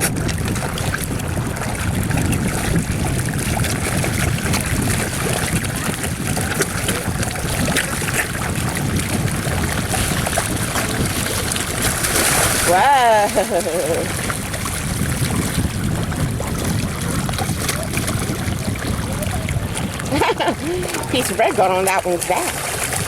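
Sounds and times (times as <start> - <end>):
water churning and splashing: 0.0 - 23.0
wind buffeting the microphone: 0.0 - 23.0
fish slapping at the surface: 2.4 - 15.7.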